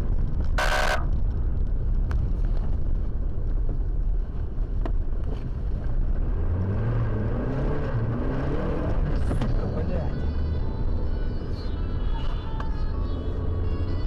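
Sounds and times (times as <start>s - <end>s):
road rumble: 0.0s - 14.0s
car engine accelerating: 5.3s - 11.0s.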